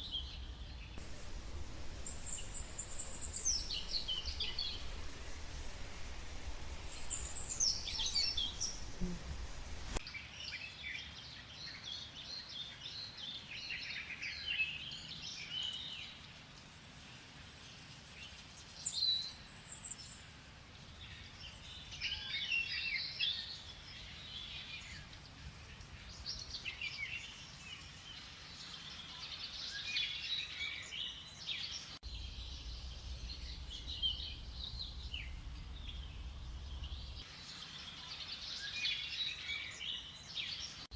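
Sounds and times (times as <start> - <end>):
faint steady background: 0.0 - 10.4, 15.0 - 40.9
birds chirping and calling: 1.0 - 10.0.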